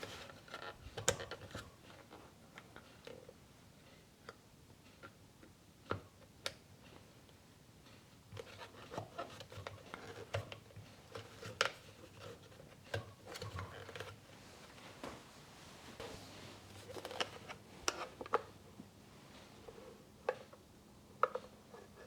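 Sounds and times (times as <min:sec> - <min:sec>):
rustling: 0:13.3 - 0:20.0.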